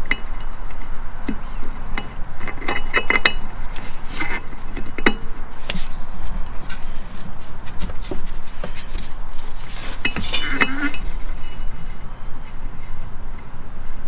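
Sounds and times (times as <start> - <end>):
low background hum: 9.1 - 13.4
hand tools clinking against metal: 10.1 - 11.6.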